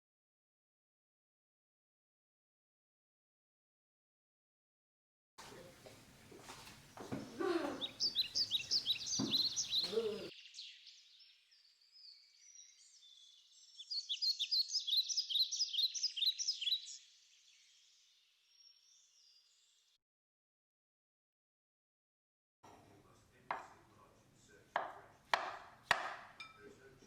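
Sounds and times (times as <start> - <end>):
small bird chirping: 6.9 - 19.9.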